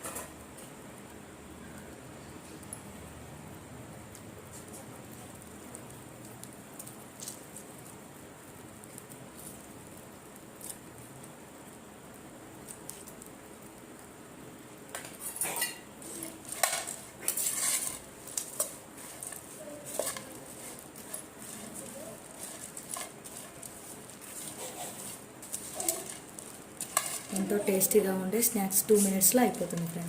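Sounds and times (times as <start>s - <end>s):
spoon and dishware clinking: 15.3s - 15.9s.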